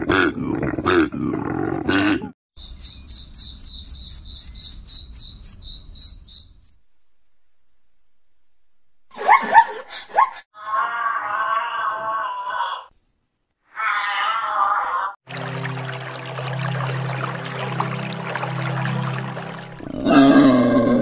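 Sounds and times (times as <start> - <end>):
high insect chirp: 2.6 - 6.8
koala bellowing grunts: 19.8 - 21.0.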